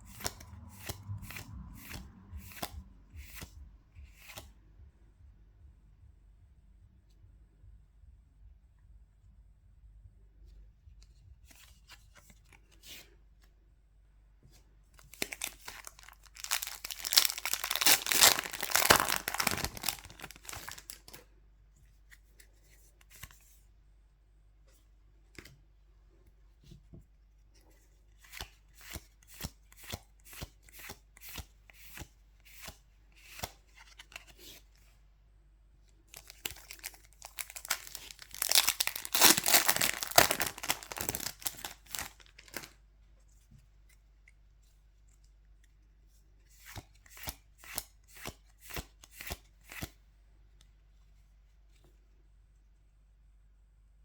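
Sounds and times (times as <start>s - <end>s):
foil wrappers tearing and crinkling: 15.1s - 21.2s, 36.2s - 42.7s.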